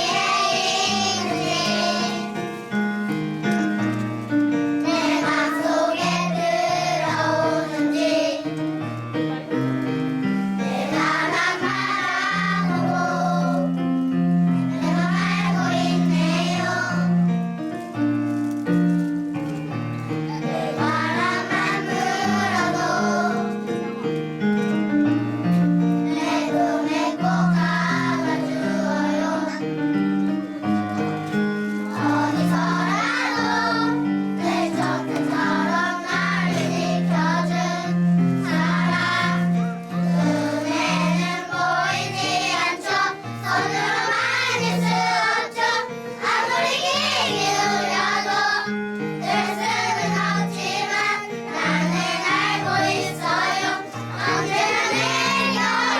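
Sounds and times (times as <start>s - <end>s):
children singing in unison: 0.0s - 2.6s, 4.8s - 8.6s, 10.6s - 13.8s, 14.6s - 17.1s, 20.3s - 23.8s, 26.1s - 29.7s, 31.8s - 55.9s
instrumental accompaniment: 0.0s - 55.9s.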